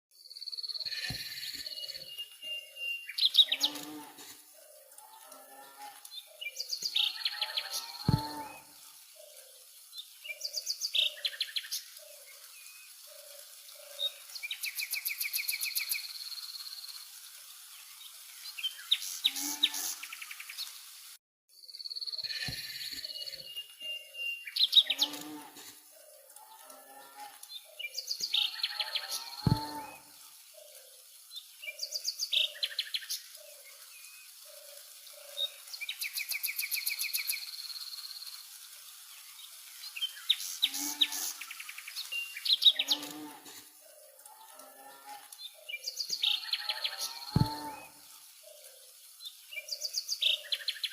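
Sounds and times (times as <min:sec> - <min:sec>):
birds chirping: 0:00.5 - 0:15.6, 0:27.5 - 0:30.8, 0:45.5 - 0:48.7.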